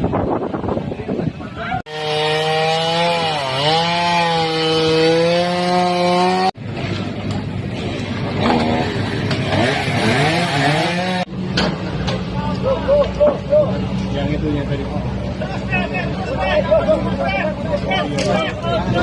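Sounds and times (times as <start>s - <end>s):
chainsaw cutting wood: 1.9s - 6.6s, 7.8s - 11.3s.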